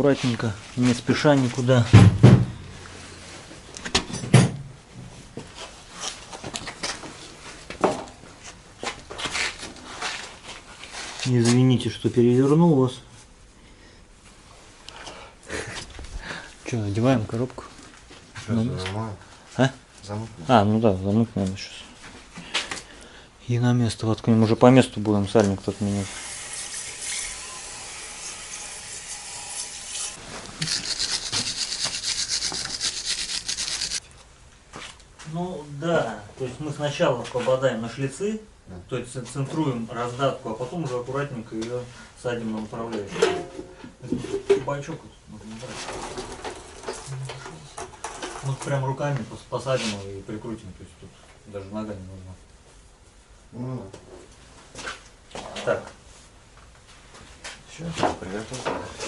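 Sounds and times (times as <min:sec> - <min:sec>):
steady hiss: 0:25.6 - 0:34.0
fast scrubbing strokes: 0:30.0 - 0:34.0.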